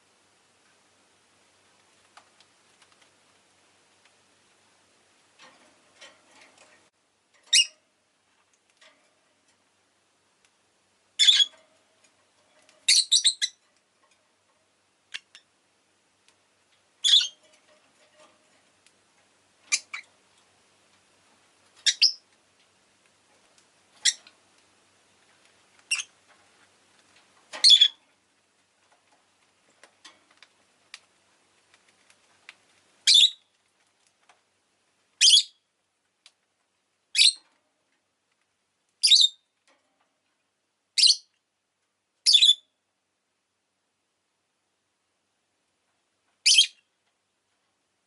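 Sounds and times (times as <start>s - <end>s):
faint soft clicks: 1.7s - 4.2s, 10.4s - 10.6s, 16.2s - 34.5s, 36.0s - 36.8s.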